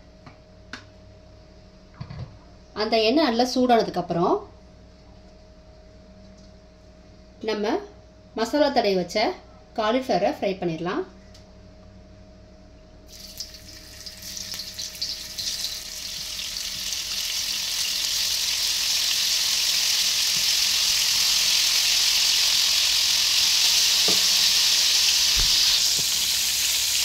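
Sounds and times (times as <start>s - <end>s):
cauliflower sizzling in hot oil: 13.1s - 27.0s.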